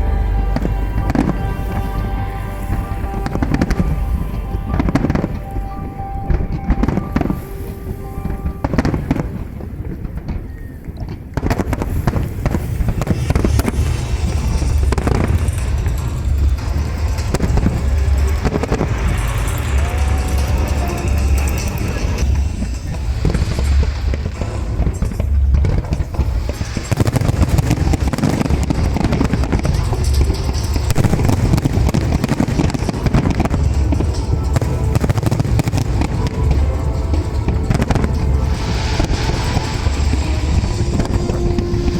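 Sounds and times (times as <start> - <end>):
loud music: 0.0 - 9.4, 13.0 - 41.9
fireworks bangs and crackles: 0.0 - 41.9
booming shells rumble: 11.1 - 41.9.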